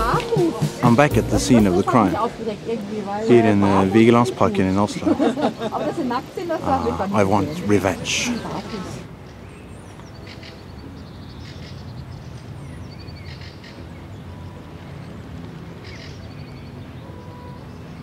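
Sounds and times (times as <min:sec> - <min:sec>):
small birds chirping: 0:06.2 - 0:14.4.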